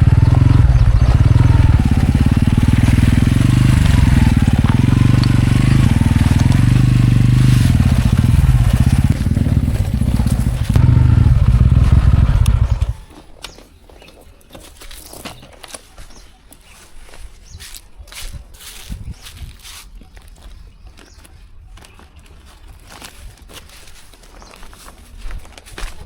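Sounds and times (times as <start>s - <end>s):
tractor engine throbbing: 0.0s - 13.1s.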